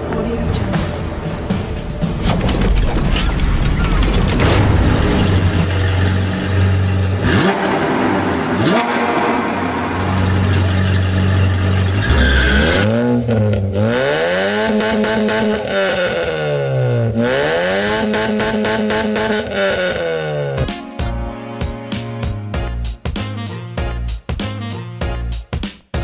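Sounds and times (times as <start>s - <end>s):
sports car engine revving: 5.2s - 20.6s.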